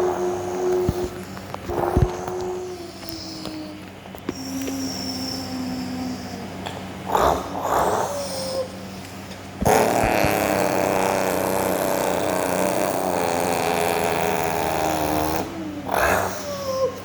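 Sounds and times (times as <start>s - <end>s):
person imitating truck engine: 9.6s - 17.0s.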